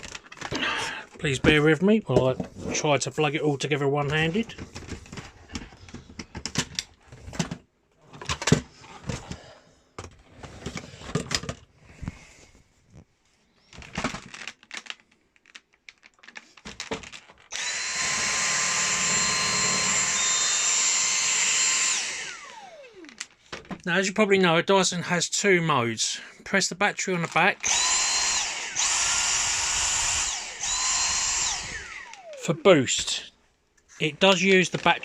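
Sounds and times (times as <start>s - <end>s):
plastic clicks and knocks: 4.0s - 7.6s
vacuum motor whining: 17.5s - 23.3s, 27.6s - 33.2s.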